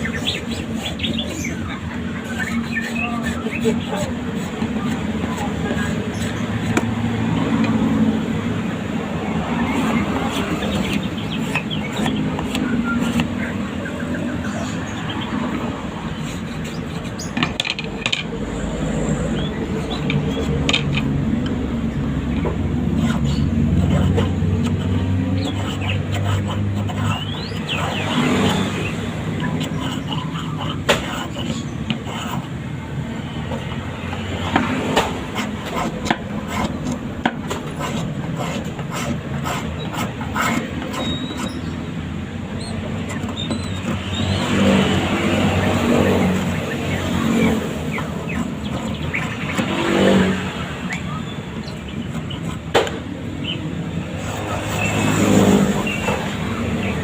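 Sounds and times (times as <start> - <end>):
steady background noise: 0.0 - 57.0
wood clicking and knocking: 17.3 - 18.4.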